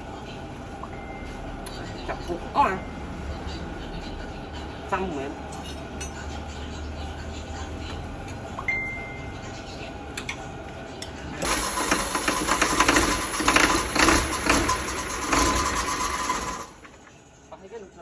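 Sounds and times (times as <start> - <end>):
car engine starting and clattering: 11.4 - 16.8.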